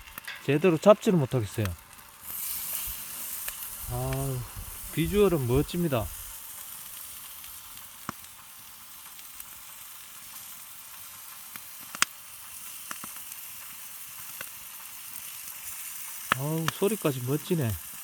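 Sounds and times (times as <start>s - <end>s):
meat sizzling on hot stone: 0.0s - 18.0s
sharp pops: 11.8s - 12.2s, 16.2s - 17.0s.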